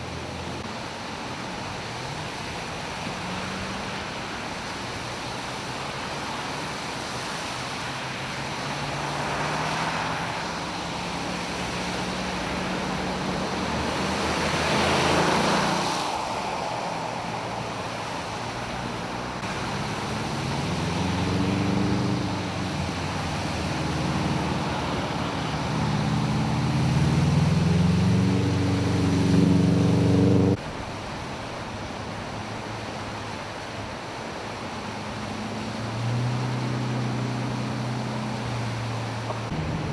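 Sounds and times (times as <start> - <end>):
vehicle engines running: 17.5 - 30.6, 34.4 - 39.9.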